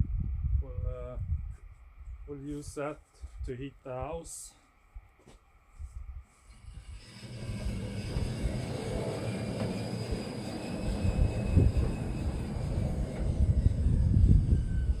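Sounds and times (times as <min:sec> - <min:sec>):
faint steady whine: 0:00.0 - 0:15.0
band sawmill running: 0:06.5 - 0:15.0.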